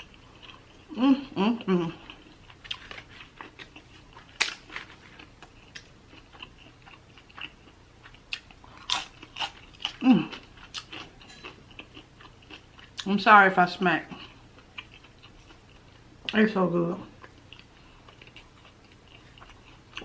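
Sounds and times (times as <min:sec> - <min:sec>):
wet chewing and lip smacking: 0:02.0 - 0:13.1, 0:14.2 - 0:16.4, 0:17.2 - 0:20.0
crunching bites: 0:02.6 - 0:11.1.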